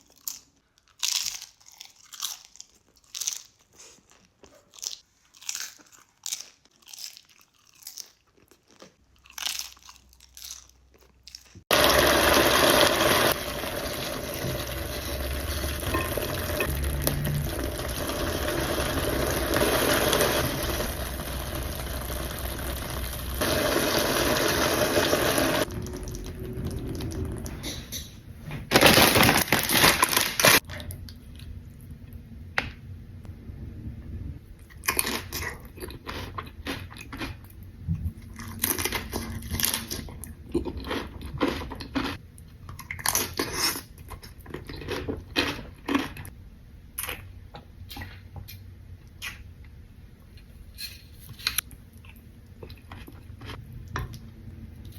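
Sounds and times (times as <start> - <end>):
chips crunching while eaten: 0.0 - 13.1, 28.7 - 30.7, 38.3 - 46.3.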